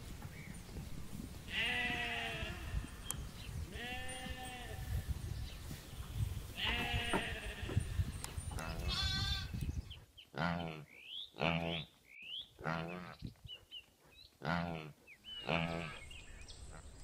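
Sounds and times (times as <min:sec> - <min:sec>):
sheep bleating: 0:01.5 - 0:02.9, 0:08.6 - 0:09.6.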